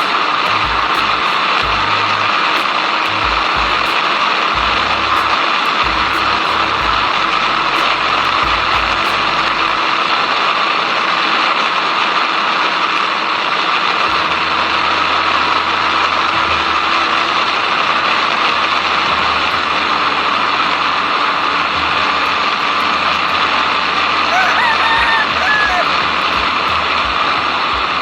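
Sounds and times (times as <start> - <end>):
motorcycle engine drone: 0.0 - 11.6.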